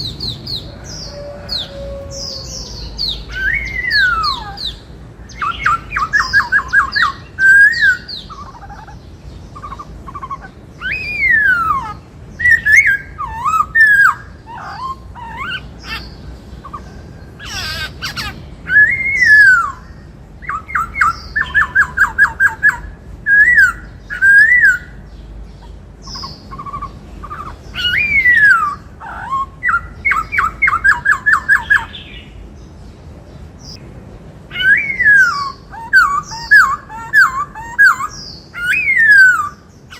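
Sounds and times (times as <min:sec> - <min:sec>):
bird singing loudly: 0:00.0 - 0:32.4, 0:34.5 - 0:39.9.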